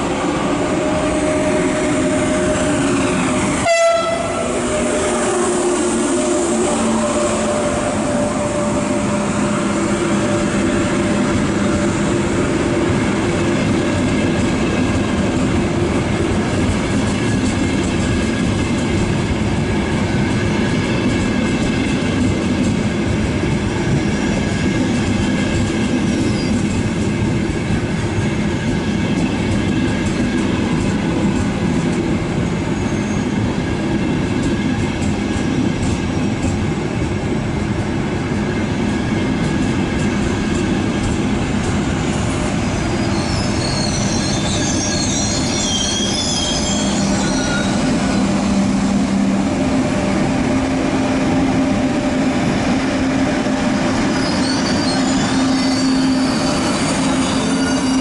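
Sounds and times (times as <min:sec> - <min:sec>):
train running: 0:00.0 - 0:58.0.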